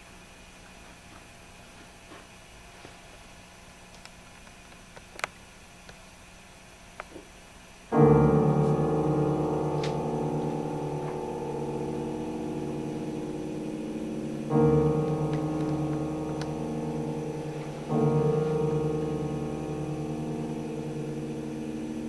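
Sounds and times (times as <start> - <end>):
piano chords: 7.9 - 22.0.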